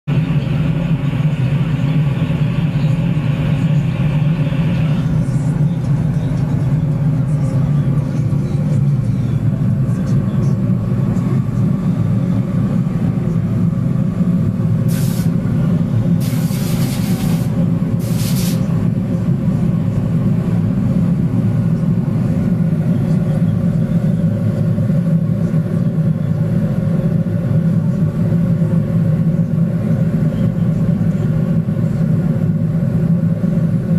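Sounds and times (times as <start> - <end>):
furnace flame rumbling: 0.1 - 33.9
bright flame hiss: 14.9 - 15.4, 16.2 - 18.6
short bursts of high hiss: 16.2 - 18.6.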